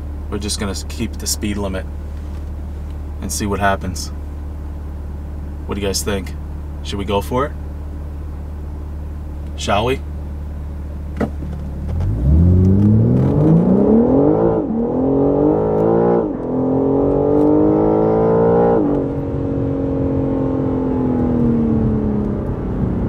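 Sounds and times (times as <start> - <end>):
car engine idling: 0.0 - 23.0
car engine accelerating: 7.5 - 23.0.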